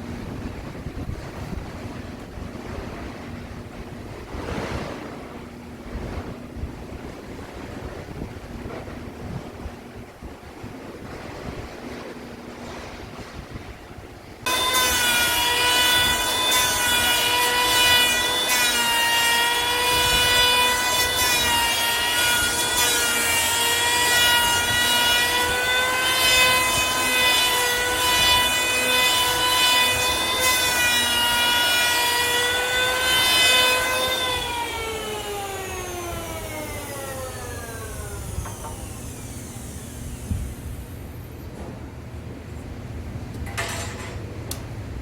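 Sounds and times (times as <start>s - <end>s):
cutting into wood: 14.5s - 41.3s
power tool whining: 14.5s - 41.5s.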